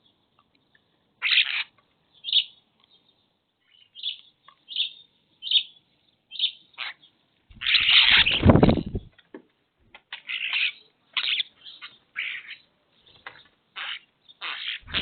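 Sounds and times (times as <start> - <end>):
bird chirping: 0.0 - 9.2, 10.1 - 15.0.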